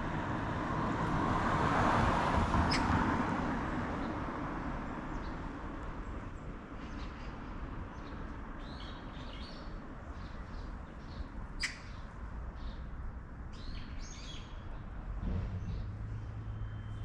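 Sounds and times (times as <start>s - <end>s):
small birds chirping: 2.7s - 2.9s, 6.4s - 15.0s.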